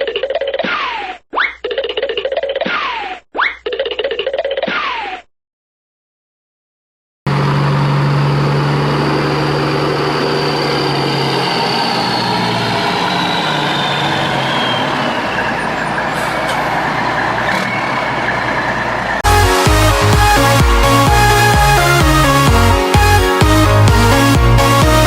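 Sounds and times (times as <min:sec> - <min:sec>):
truck engine running: 0:07.3 - 0:25.0
music: 0:19.2 - 0:25.0.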